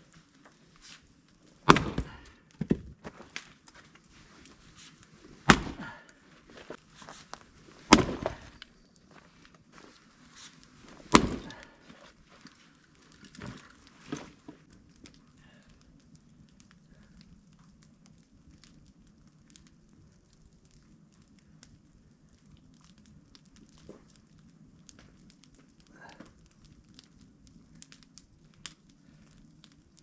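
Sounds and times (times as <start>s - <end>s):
firewood knocking: 1.6s - 4.0s, 5.3s - 9.2s, 10.9s - 12.6s.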